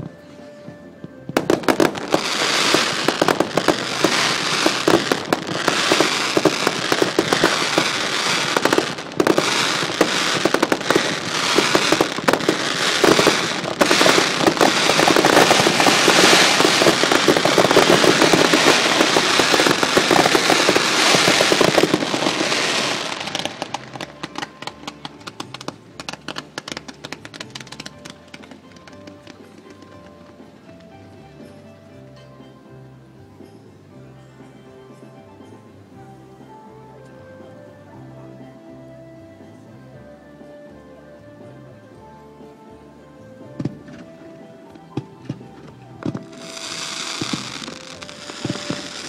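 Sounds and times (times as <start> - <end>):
fireworks crackling and popping: 1.2 - 30.9, 44.8 - 49.0.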